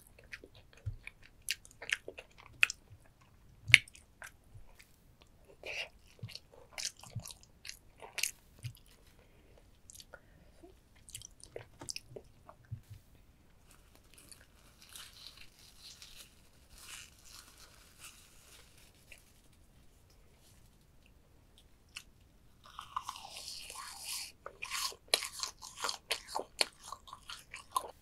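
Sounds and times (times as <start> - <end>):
wet chewing: 0.0 - 4.9, 5.5 - 9.0, 22.7 - 28.0.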